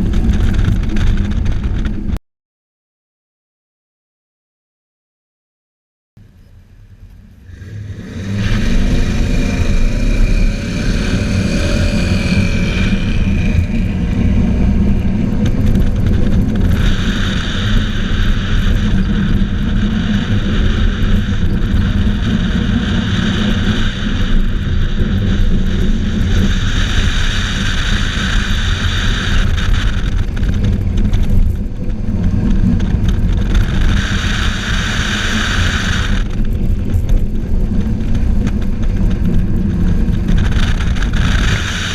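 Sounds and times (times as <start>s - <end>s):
car engine revving and accelerating: 7.1s - 41.9s
high-pitched hissing noise: 33.5s - 36.3s.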